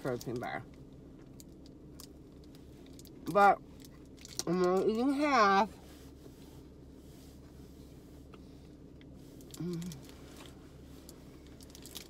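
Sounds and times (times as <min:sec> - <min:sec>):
low hum inside car: 0:00.0 - 0:12.0
person humming mm: 0:09.6 - 0:10.0.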